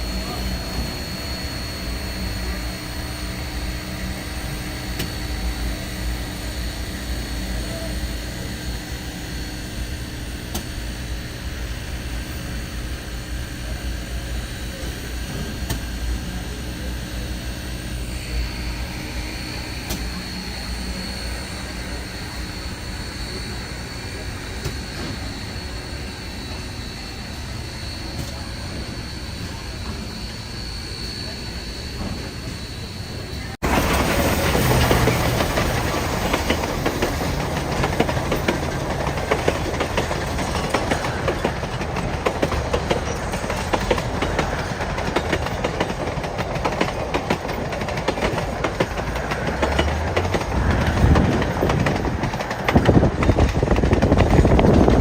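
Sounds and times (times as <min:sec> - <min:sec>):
train wheels clattering over rails: 0:18.9 - 0:30.4, 0:33.6 - 0:55.0.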